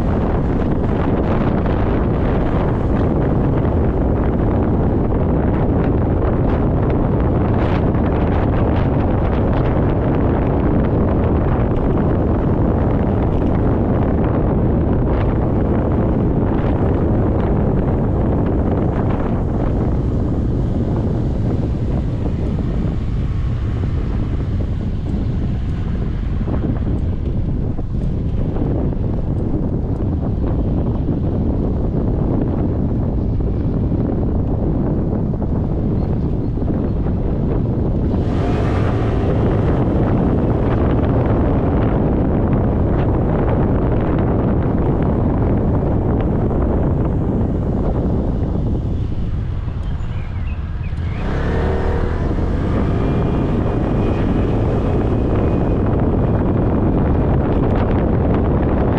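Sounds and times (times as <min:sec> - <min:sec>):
motorcycle engine running: 0:00.0 - 0:58.9
wind rushing over microphone: 0:00.0 - 0:58.9.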